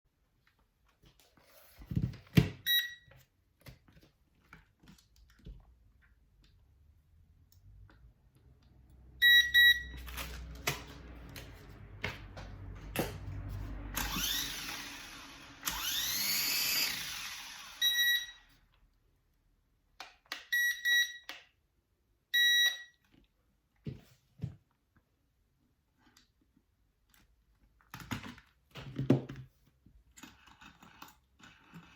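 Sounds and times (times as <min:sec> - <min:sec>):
small motors whirring: 0:14.0 - 0:18.4.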